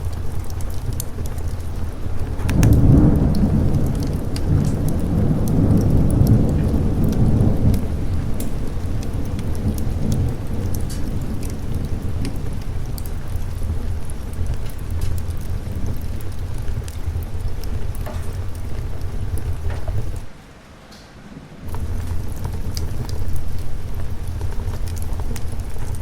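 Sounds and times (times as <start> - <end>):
thunder rumble: 0.0 - 20.3, 21.6 - 26.0
steady rain: 0.0 - 26.0.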